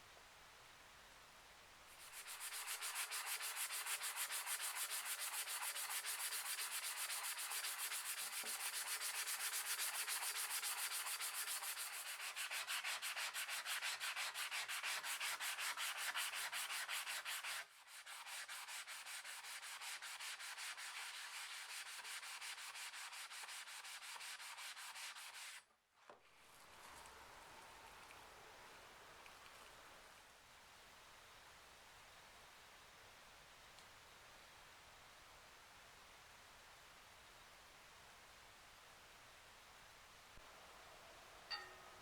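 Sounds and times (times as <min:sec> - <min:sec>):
hand sanding strokes: 0:02.0 - 0:25.6.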